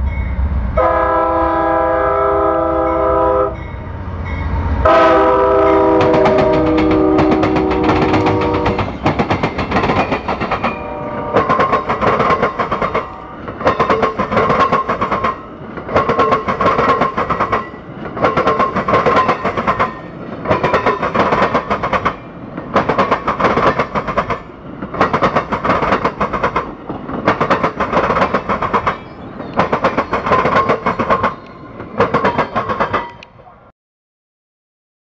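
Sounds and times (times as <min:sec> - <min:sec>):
train rumble with ringing tone: 0:00.0 - 0:33.7
train wheels clattering over crossing: 0:05.6 - 0:33.2.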